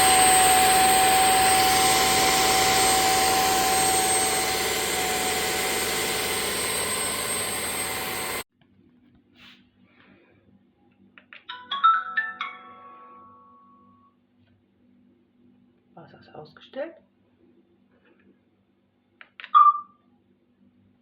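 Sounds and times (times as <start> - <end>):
vacuum motor whine: 0.0 - 8.4.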